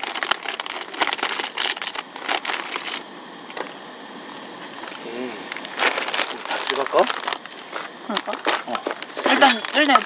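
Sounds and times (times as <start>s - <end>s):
noodle packets crinkling: 0.0s - 3.0s, 5.5s - 10.0s.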